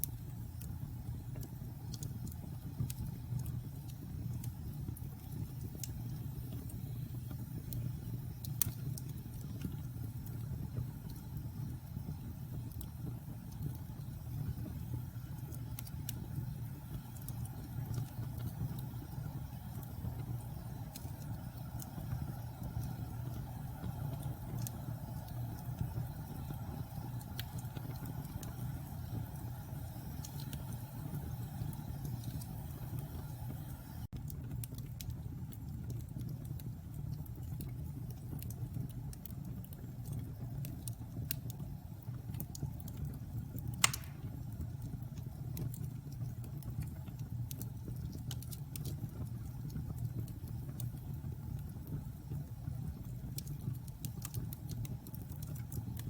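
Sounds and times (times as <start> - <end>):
log fire burning: 0.0 - 56.0
loud sharp fire pop: 43.8 - 44.3.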